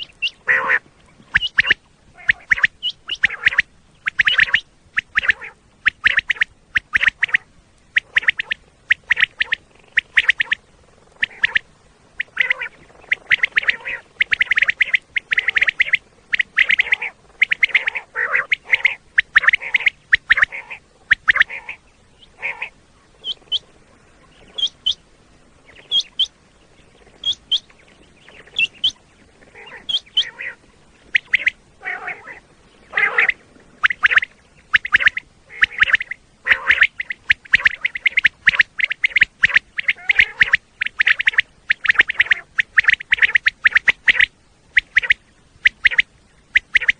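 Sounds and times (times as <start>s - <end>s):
quail calling: 0.0s - 46.9s.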